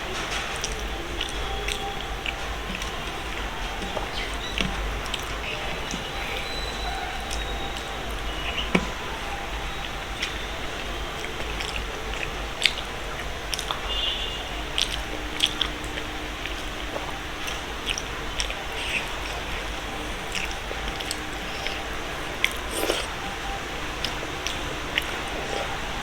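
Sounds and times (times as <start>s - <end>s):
wet chewing mouth noises: 14.8s - 26.0s.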